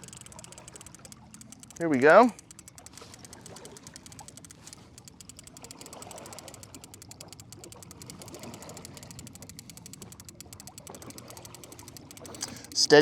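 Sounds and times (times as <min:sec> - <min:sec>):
fishing reel ticking: 0:00.0 - 0:13.0.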